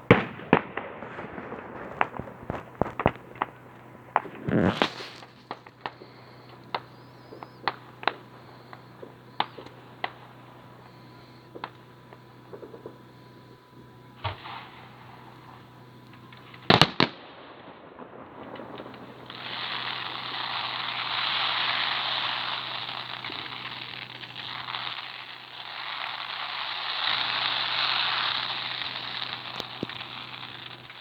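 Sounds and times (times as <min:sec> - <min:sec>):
firework shell bursting: 0:00.0 - 0:13.0
fireworks crackling: 0:00.0 - 0:31.0.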